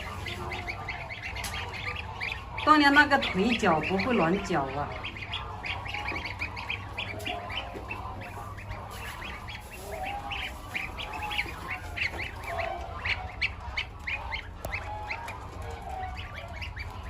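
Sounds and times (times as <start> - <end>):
goslings peeping: 0.0 - 17.0.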